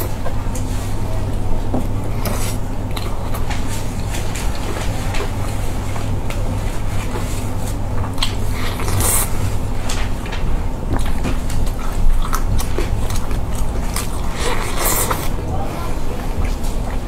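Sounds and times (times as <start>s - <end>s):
steady low hum: 0.0s - 17.0s
biting and chewing: 6.3s - 17.0s.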